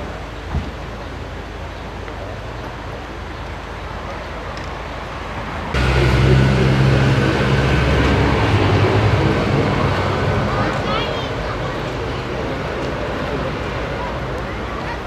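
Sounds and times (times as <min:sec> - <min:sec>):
vehicle engine humming: 0:05.7 - 0:15.0.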